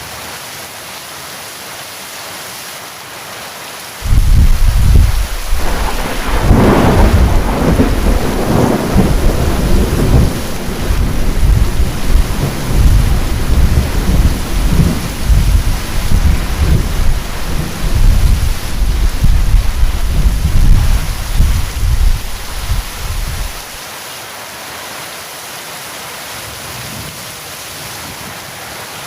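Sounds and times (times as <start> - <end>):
heavy rain: 0.0 - 29.0
thunder rolling: 4.0 - 23.8.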